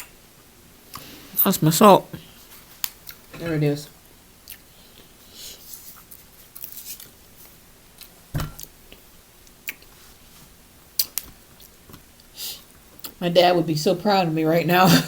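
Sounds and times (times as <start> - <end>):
faint chewing: 4.4 - 10.2, 11.0 - 13.2.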